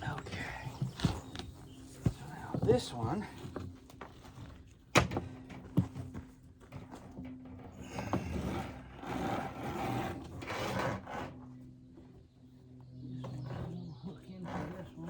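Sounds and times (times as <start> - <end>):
wire rope scraping and rustling: 8.2 - 11.3.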